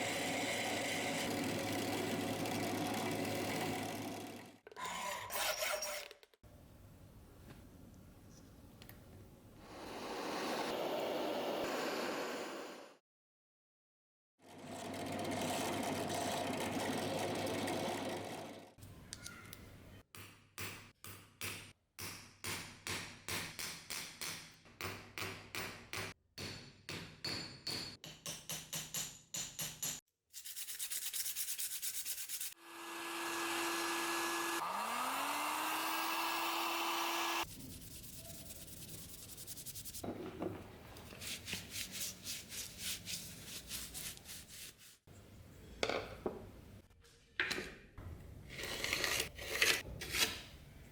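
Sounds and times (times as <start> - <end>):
hand sanding strokes: 30.3 - 32.6, 34.2 - 40.0, 41.1 - 45.1
small electric motor running: 32.6 - 37.5
steady grinding noise: 32.8 - 37.4.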